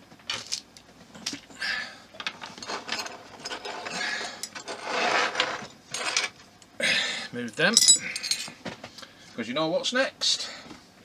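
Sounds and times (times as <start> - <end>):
small parts clicking and rattling: 2.2 - 6.4, 7.6 - 8.5.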